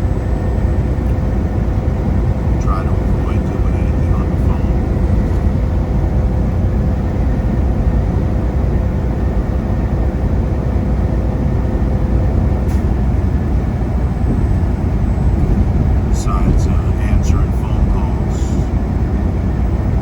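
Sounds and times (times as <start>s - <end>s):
truck engine and road rumble: 0.0s - 20.0s
faint steady hum: 13.6s - 20.0s.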